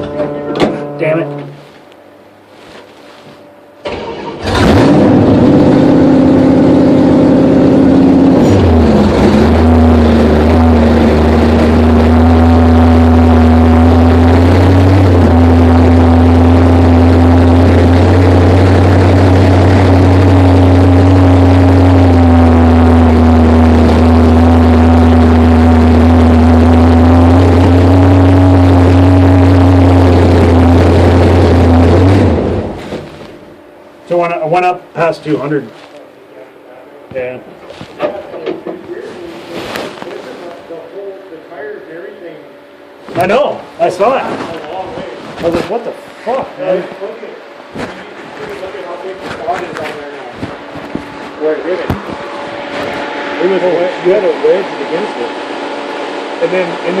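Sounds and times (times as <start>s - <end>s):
car engine starting and running: 3.7s - 33.8s, 47.5s - 57.0s.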